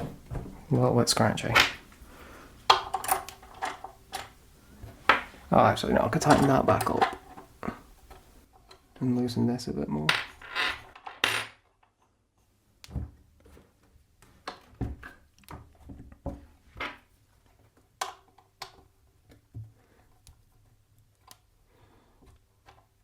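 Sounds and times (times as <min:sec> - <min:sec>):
metallic clicks and knocks: 0:06.1 - 0:08.8.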